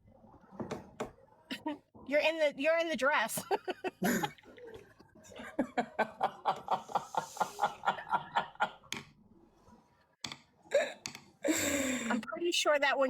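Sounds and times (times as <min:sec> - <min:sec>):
person chuckling: 0:03.4 - 0:04.5, 0:05.3 - 0:08.7.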